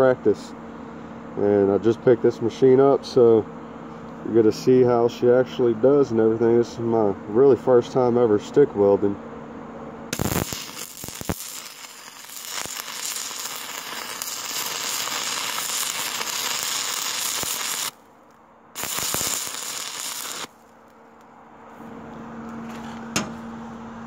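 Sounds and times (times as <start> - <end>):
welding arc crackling hiss: 10.1 - 18.0, 18.8 - 21.0.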